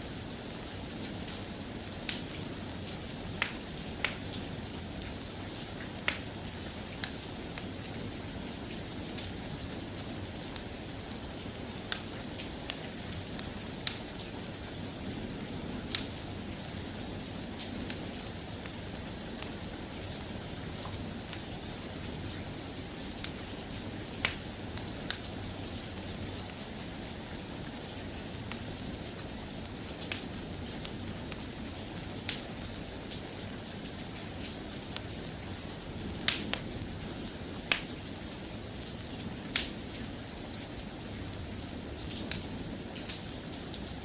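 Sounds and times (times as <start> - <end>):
soft rain: 0.0 - 44.0.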